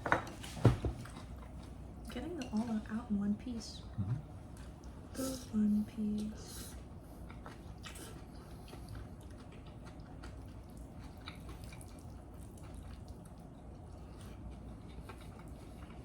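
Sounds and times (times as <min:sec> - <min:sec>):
person chewing: 0:07.2 - 0:16.0.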